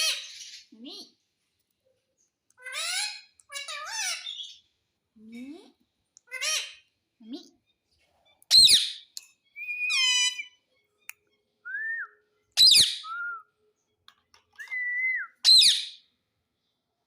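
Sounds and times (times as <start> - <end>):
parrot screeching: 2.6 - 4.6, 9.6 - 10.6.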